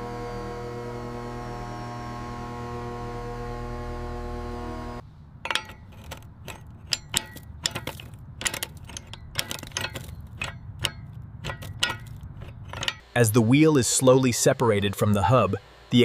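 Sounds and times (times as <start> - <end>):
metal tools clinking: 5.4 - 13.1.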